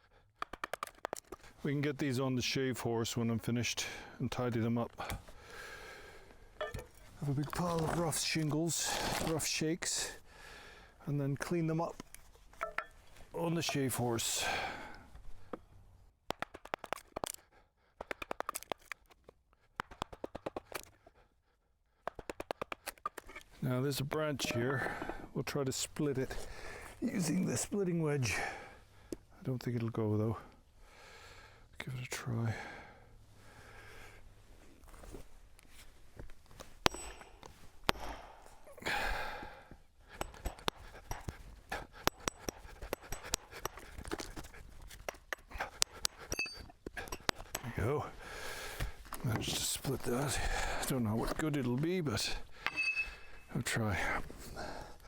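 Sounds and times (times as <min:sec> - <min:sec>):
wood splitting with ticks and cracks: 0:00.1 - 0:01.6, 0:04.4 - 0:09.6, 0:11.4 - 0:15.6, 0:16.2 - 0:21.2, 0:21.9 - 0:23.6, 0:35.6 - 0:52.7.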